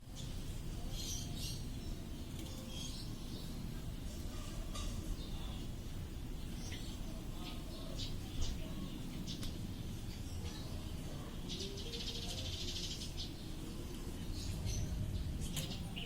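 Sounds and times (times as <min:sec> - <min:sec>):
lovebirds chirping: 0:00.0 - 0:16.0
steady low rumble: 0:13.2 - 0:16.0.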